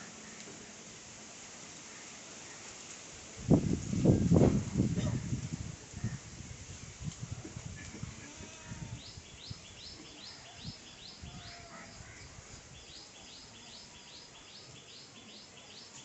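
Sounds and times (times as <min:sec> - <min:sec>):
goats bleating: 0:08.1 - 0:09.0.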